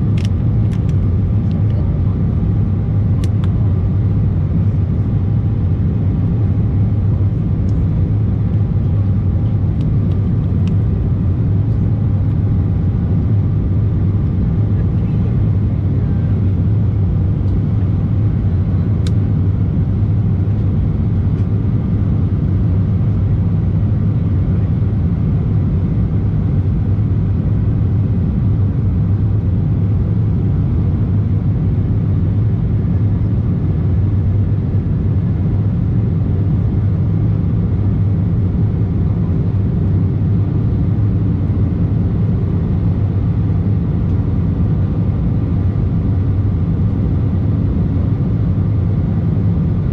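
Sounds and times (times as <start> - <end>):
jet engine cabin noise: 0.0 - 49.9
small click: 0.2 - 1.7.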